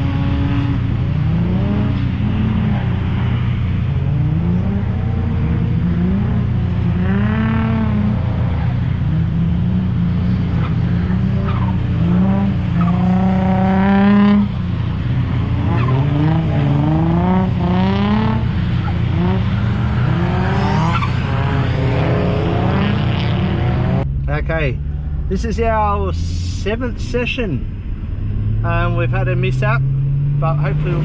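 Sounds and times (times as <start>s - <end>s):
car engines revving: 0.0s - 31.0s
steady low rumble: 23.0s - 31.0s.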